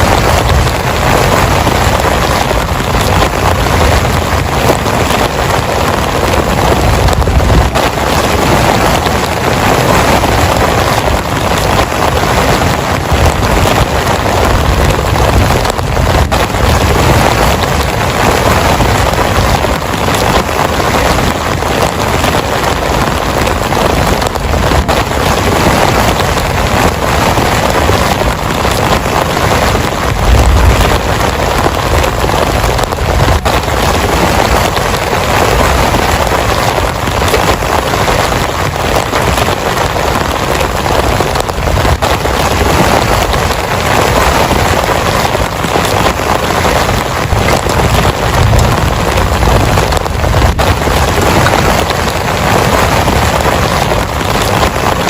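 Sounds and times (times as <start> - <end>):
heavy rain pouring: 0.0 - 55.0
low rumble: 30.0 - 33.9.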